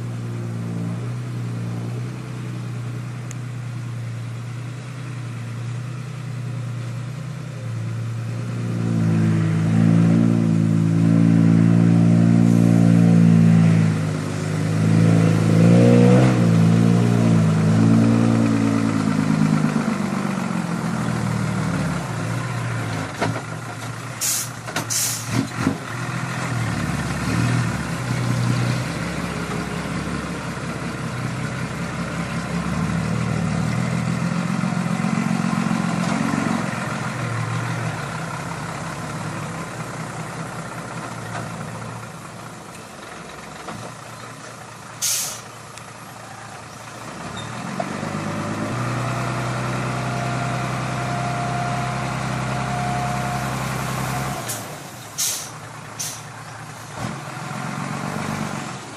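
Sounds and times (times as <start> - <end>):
dump truck engine pulling hard: 0.0 - 58.9
short sharp hisses: 24.2 - 25.4, 45.0 - 45.6, 54.4 - 56.3.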